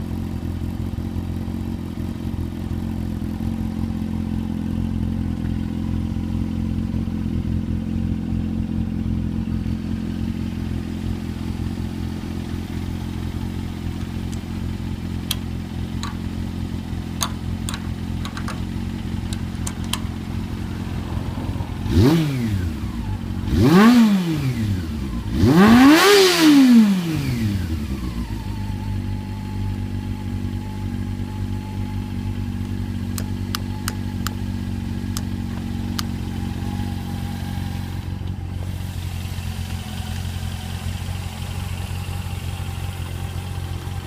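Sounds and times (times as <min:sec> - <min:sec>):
motorcycle engine idling: 0:00.0 - 0:26.2, 0:26.8 - 0:44.0
sharp clicks: 0:15.2 - 0:16.2, 0:17.2 - 0:20.1.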